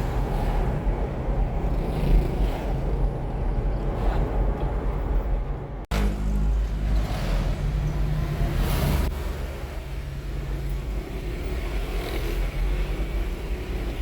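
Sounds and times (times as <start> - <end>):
motor vehicle rumble: 0.0 - 14.0.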